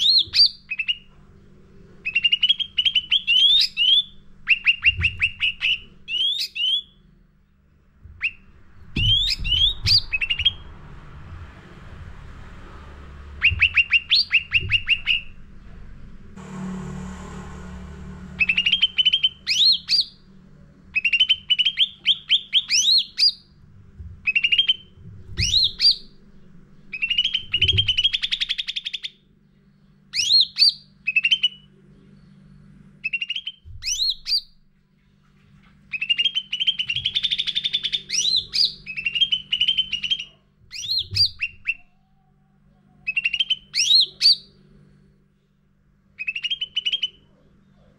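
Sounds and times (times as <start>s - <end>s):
low steady hum: 0.0s - 47.9s
bird singing fast chirps: 2.0s - 7.0s, 8.2s - 10.7s, 13.4s - 15.4s, 18.3s - 20.2s, 24.2s - 26.2s, 26.8s - 29.2s, 33.0s - 34.5s, 35.9s - 41.9s, 43.1s - 44.6s, 46.2s - 47.3s.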